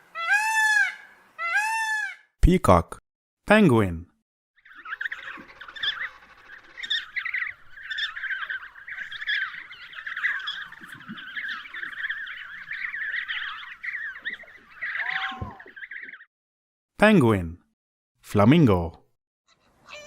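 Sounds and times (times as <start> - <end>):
penguins calling: 0.1 - 2.2, 4.6 - 16.2.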